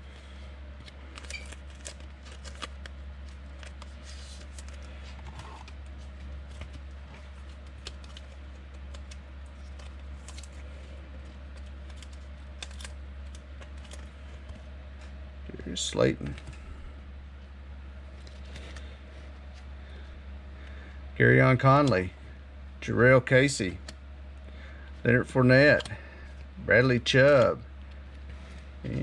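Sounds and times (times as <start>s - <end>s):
low electrical hum: 0.0s - 29.0s
trading cards rustling: 0.1s - 15.2s, 18.1s - 20.1s.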